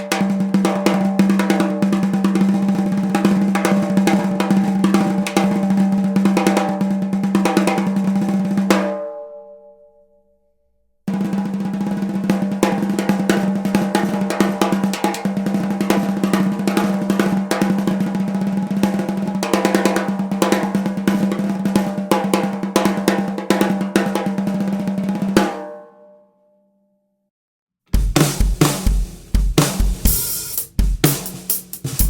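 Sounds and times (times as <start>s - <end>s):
snare drum roll: 28.0s - 32.0s.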